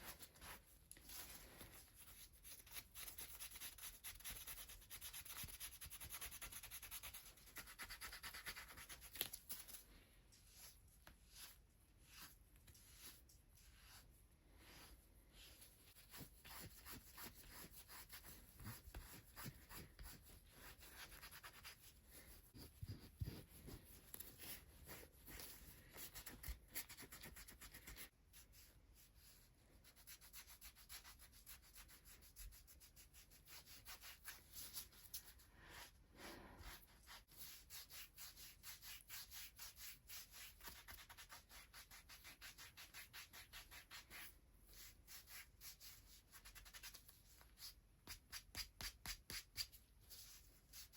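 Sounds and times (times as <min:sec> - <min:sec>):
hands rubbing bare skin: 0:00.0 - 0:28.1.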